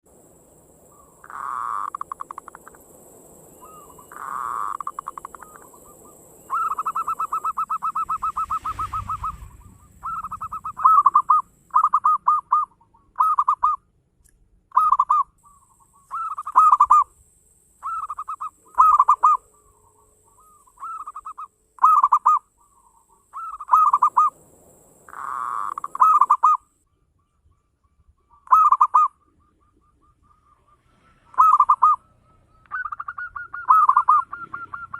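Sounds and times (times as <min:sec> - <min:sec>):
dove rolling trill: 0:00.1 - 0:13.8, 0:14.7 - 0:26.7, 0:28.3 - 0:34.9
dove cooing phrases: 0:00.9 - 0:02.8, 0:03.6 - 0:13.8, 0:14.7 - 0:17.1, 0:17.8 - 0:24.4, 0:25.1 - 0:26.6, 0:28.4 - 0:32.1, 0:32.7 - 0:34.9.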